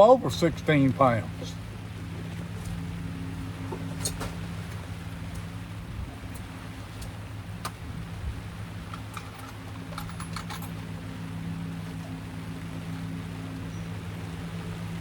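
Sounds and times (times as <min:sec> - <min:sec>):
low motor hum: 0:00.0 - 0:15.0
light clicks and rattles: 0:08.8 - 0:10.8.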